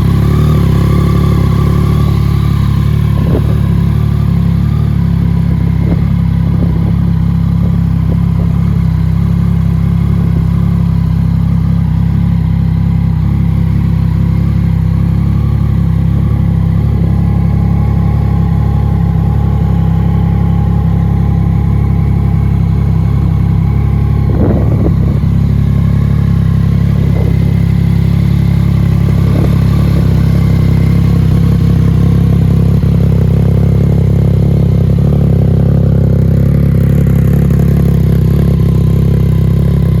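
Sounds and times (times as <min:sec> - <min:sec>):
motorcycle engine idling: 0:00.0 - 0:40.0.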